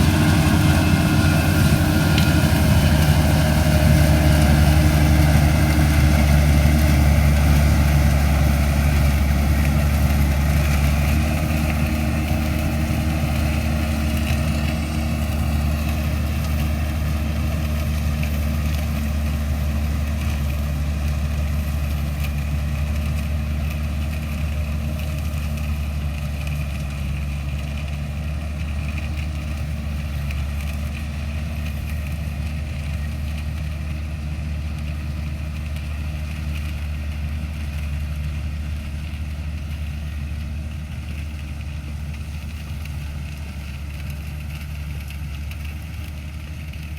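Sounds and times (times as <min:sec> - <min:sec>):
combine harvester engine running: 0:00.0 - 0:46.9.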